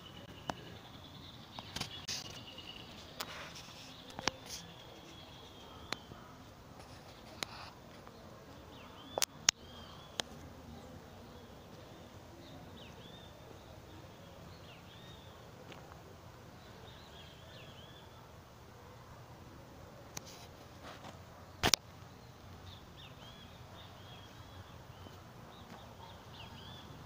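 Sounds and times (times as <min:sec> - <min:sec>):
small birds chirping: 0:00.0 - 0:27.0
sharp clicks: 0:21.6 - 0:21.9.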